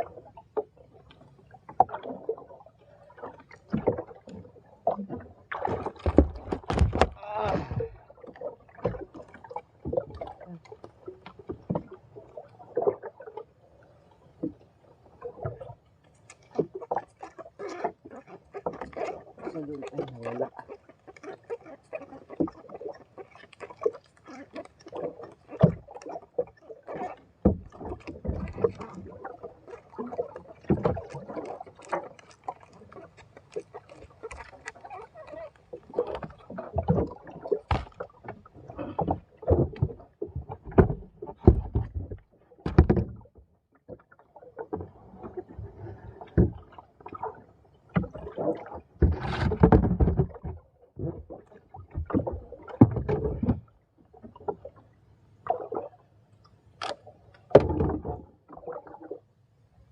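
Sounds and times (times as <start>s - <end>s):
water splashing: 0.0s - 14.6s, 15.2s - 56.0s
knocks against boat hull: 37.7s - 37.9s, 40.6s - 43.1s.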